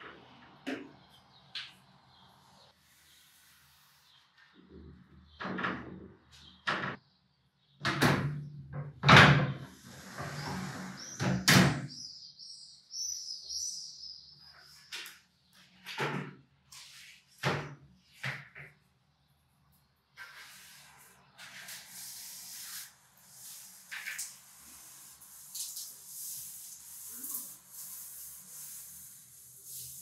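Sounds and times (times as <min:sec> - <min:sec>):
panels scraping along track: 0:09.8 - 0:11.3.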